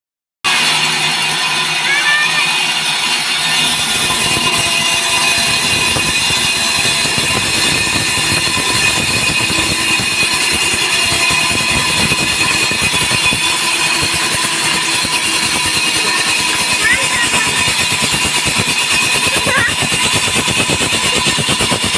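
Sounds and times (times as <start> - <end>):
core drill boring concrete: 0.5 - 21.9.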